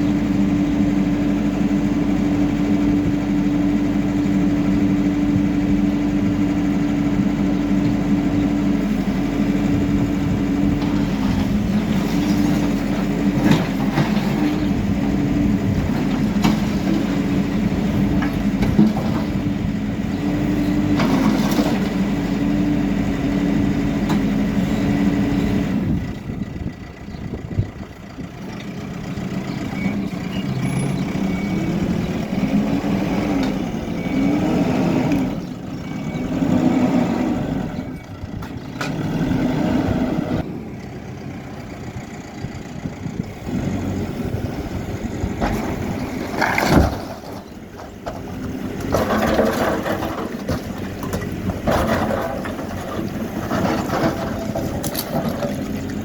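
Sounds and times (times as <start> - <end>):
diesel engine running: 0.0 - 56.0
knocks and clatter: 10.7 - 14.8, 15.7 - 19.6, 20.8 - 22.2, 45.3 - 56.0.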